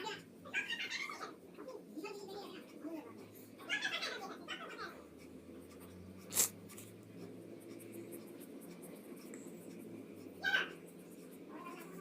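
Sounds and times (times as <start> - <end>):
pencil scratching on paper: 3.7 - 12.0.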